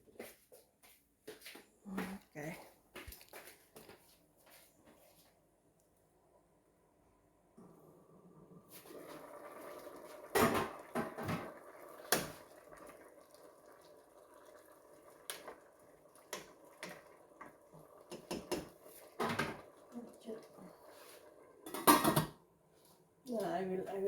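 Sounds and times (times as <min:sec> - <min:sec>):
pots and dishes clattering: 0:10.3 - 0:12.4, 0:18.1 - 0:19.7, 0:21.6 - 0:22.4.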